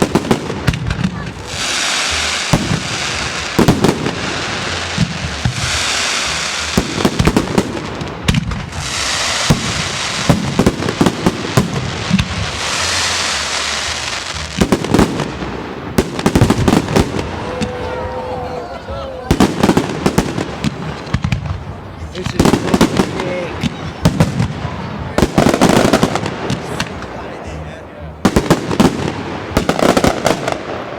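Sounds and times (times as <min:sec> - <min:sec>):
fireworks hissing crackle: 0:00.0 - 0:18.2
fireworks bangs: 0:00.0 - 0:18.5, 0:19.3 - 0:30.9.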